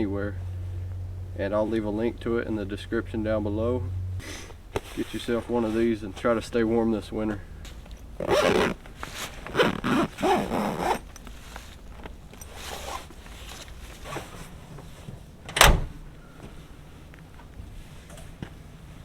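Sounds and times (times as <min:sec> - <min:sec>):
handling noise: 0:04.5 - 0:15.3
zipper pulled: 0:08.2 - 0:14.3.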